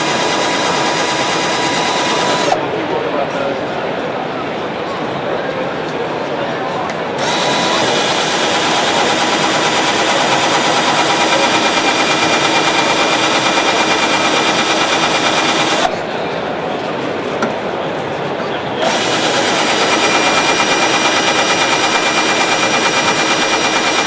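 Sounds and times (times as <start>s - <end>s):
power tool pulsing: 0.0s - 2.6s, 7.2s - 15.9s, 18.8s - 24.0s.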